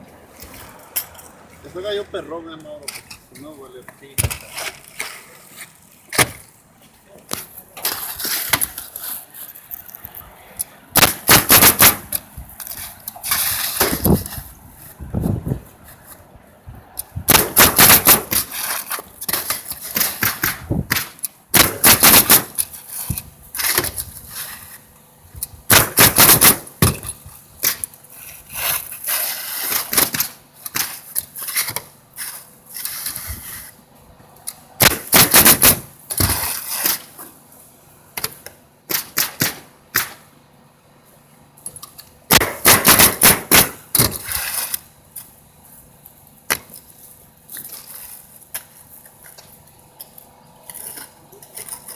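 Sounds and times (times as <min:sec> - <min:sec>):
roof nailing strikes: 0:06.1 - 0:06.5, 0:10.9 - 0:14.4, 0:17.3 - 0:24.5, 0:25.7 - 0:28.0, 0:28.6 - 0:33.3, 0:34.8 - 0:37.3, 0:38.2 - 0:40.3, 0:42.3 - 0:44.8.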